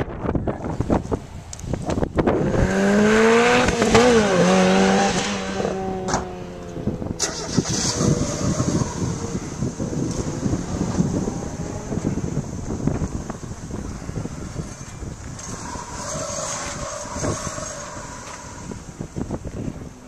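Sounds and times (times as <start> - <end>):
wind buffeting microphone: 0.0 - 20.0
sports car engine revving: 2.2 - 14.8.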